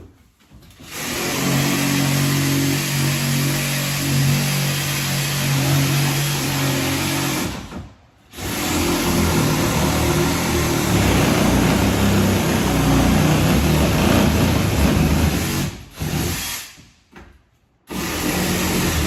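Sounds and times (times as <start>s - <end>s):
electric power saw cutting: 8.6s - 15.7s.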